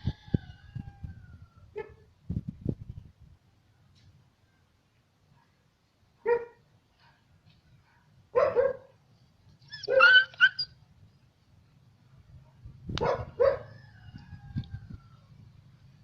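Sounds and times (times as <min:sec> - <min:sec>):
dog barking: 0:06.2 - 0:07.2, 0:07.8 - 0:09.0, 0:09.8 - 0:10.6, 0:12.4 - 0:13.8.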